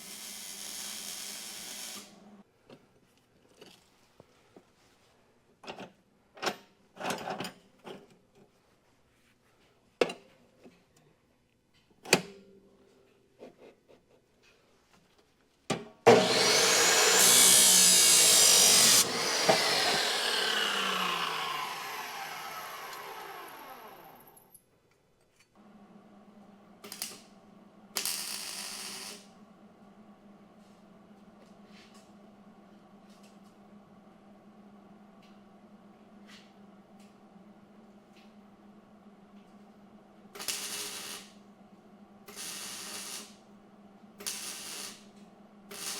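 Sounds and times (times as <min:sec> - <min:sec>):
power tool motor whining: 0:16.1 - 0:24.4.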